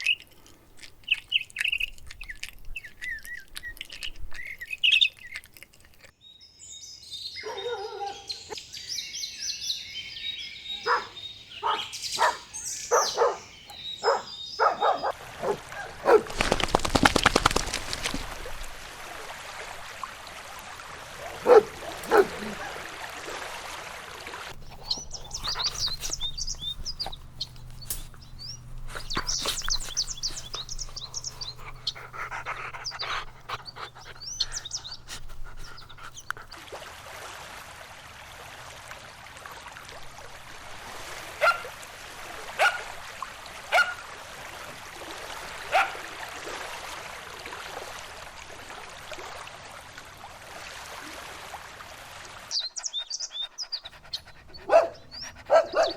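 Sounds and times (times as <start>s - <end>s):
small birds chirping: 0.0s - 18.3s, 21.4s - 22.8s, 24.5s - 36.6s, 52.5s - 55.9s
dog barking: 7.4s - 8.5s, 10.8s - 16.4s, 21.4s - 22.9s, 41.4s - 41.7s, 42.6s - 42.9s, 43.7s - 44.0s, 45.7s - 46.1s, 54.6s - 55.9s.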